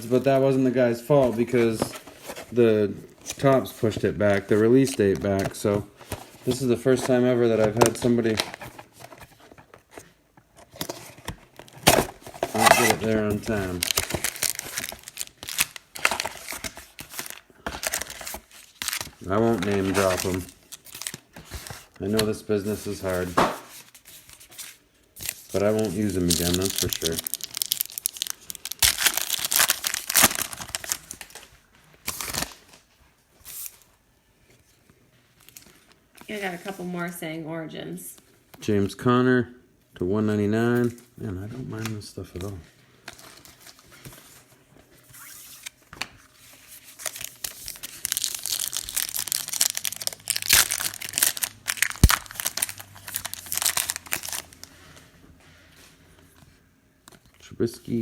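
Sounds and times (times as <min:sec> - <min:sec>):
foil wrappers crinkling and tearing: 0:11.6 - 0:23.3, 0:25.2 - 0:32.8, 0:46.7 - 0:54.7.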